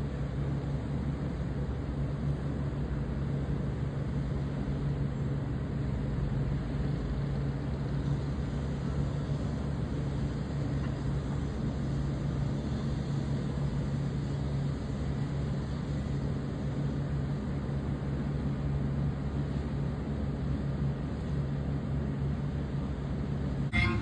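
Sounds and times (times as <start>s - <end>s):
low engine drone: 23.7s - 24.0s.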